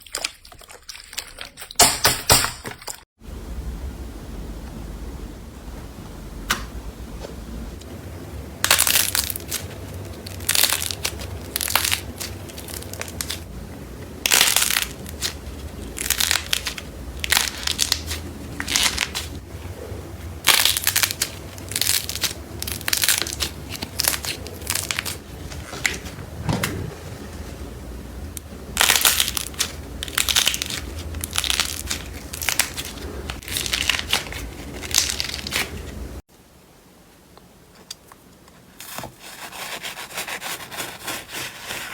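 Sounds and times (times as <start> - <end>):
slime crunching and crackling: 8.6 - 13.4, 14.2 - 19.4, 20.4 - 26.9, 28.8 - 36.0.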